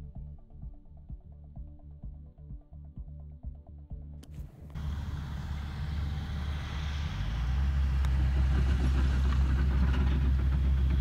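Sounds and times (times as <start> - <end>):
background music: 0.0 - 9.2
low rumble with hiss: 4.2 - 11.0.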